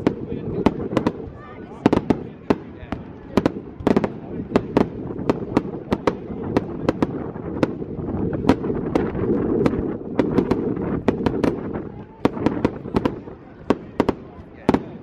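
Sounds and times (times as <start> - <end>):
crackling rumble: 0.0 - 15.0
fireworks bangs and cracks: 0.0 - 15.0.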